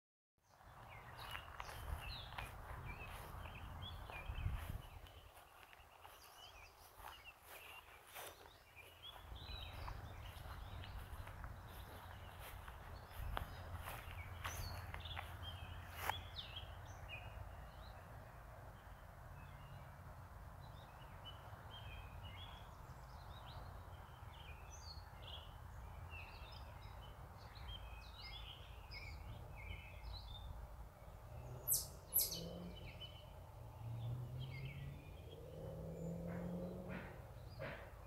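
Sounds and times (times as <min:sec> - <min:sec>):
small birds chirping: 0:00.4 - 0:18.2, 0:20.6 - 0:38.0
low outdoor rumble: 0:00.6 - 0:20.6.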